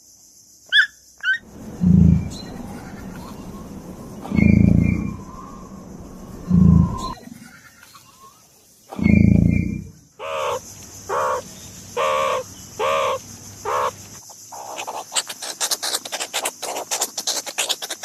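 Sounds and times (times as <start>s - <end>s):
crow cawing: 10.2s - 11.4s, 12.0s - 13.9s.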